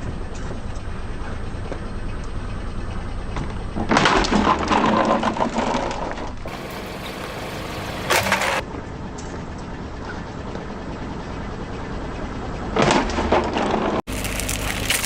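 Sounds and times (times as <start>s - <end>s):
car engine running: 6.3s - 15.0s
tyre crushing brittle object: 14.1s - 15.0s.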